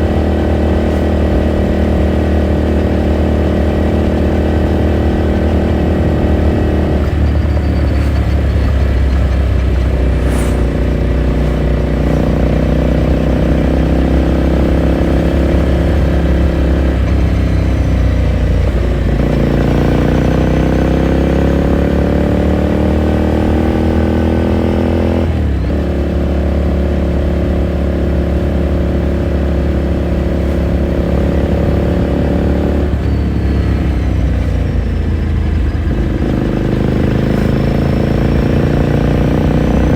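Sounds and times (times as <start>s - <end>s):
motorcycle exhaust: 0.0s - 39.9s.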